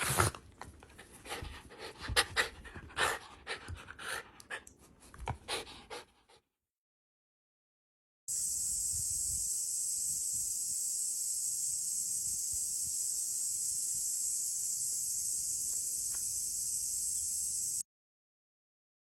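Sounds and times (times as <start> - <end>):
high-pitched hiss: 8.3 - 17.8.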